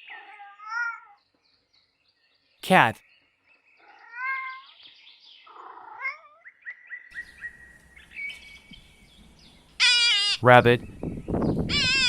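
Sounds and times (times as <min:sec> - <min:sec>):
cat meowing: 0:00.0 - 0:01.2, 0:03.8 - 0:04.6, 0:11.7 - 0:12.0.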